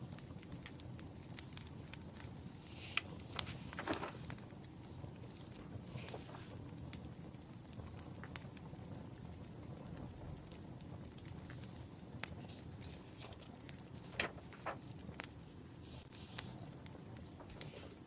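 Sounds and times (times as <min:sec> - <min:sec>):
wood fire crackling: 0:00.0 - 0:18.0
low steady rumble: 0:12.4 - 0:14.8.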